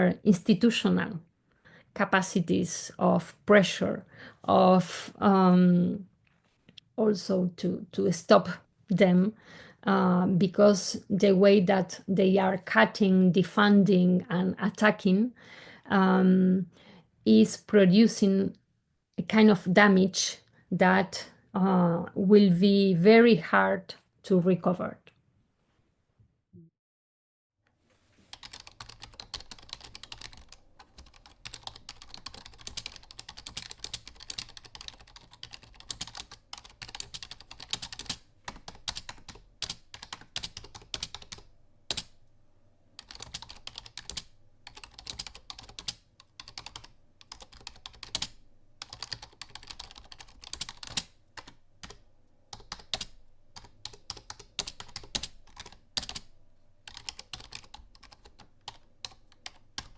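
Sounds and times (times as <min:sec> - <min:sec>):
rapid typing on keyboard: 0:28.3 - 0:42.2, 0:43.0 - 0:59.9.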